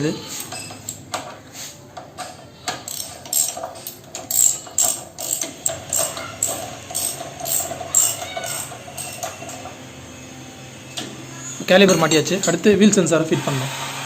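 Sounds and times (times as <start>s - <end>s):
ratchet wrench clicking: 2.8s - 9.6s.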